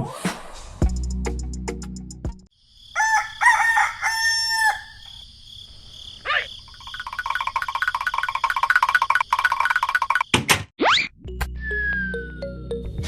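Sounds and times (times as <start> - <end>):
rooster crowing: 2.8 - 5.2
fast run of ticks: 6.8 - 10.3.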